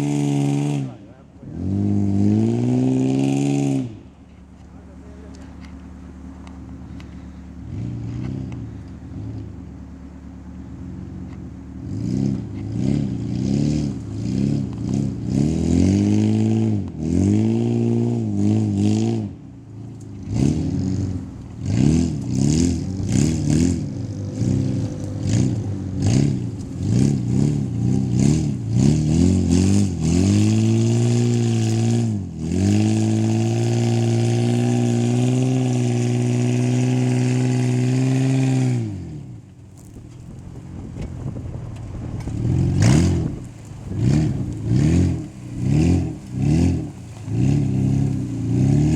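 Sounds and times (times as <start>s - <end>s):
pickup engine idling and revving: 0.0s - 48.9s.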